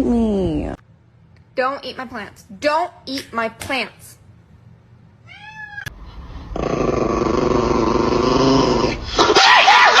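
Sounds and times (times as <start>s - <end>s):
cat yowling: 5.3s - 5.9s
cat growling: 6.5s - 9.1s.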